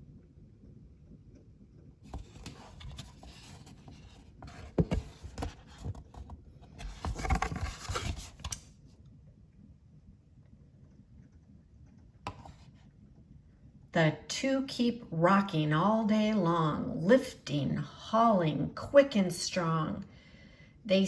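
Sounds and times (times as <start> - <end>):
rustling and scraping handling noise: 2.1 - 8.7, 12.3 - 12.9.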